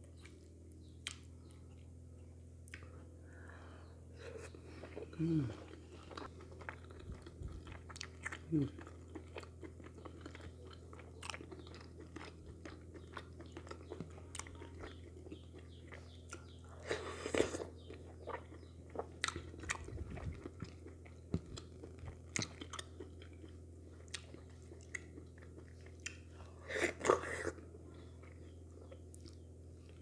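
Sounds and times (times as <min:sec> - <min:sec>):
steady low hum: 0:00.0 - 0:30.0
chewing and wet mouth clicks: 0:05.7 - 0:16.6, 0:17.8 - 0:26.2.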